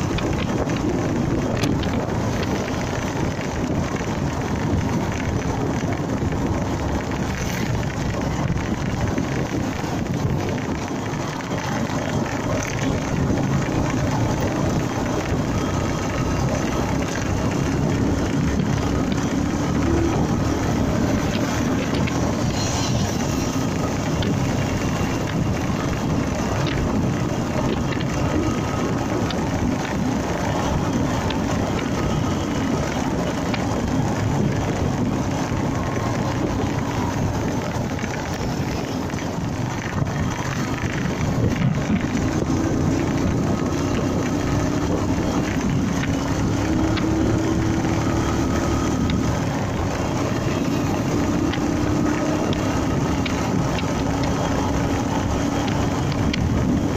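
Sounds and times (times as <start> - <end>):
motorcycle engine: 0.0 - 56.9
wind and road noise: 0.0 - 56.9.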